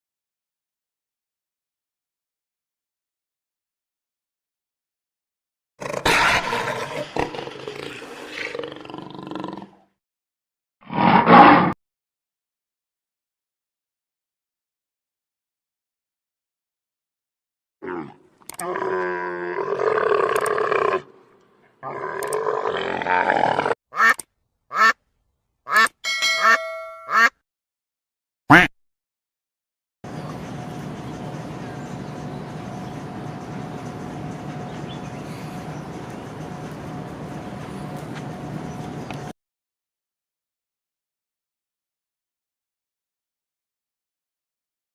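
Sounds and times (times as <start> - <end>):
lion roaring: 5.8 - 9.8, 10.9 - 11.7, 17.8 - 21.2, 21.8 - 23.8
duck quacks: 23.9 - 25.0, 25.7 - 25.9, 27.1 - 27.3, 28.5 - 28.7
ringing chime: 26.0 - 27.2.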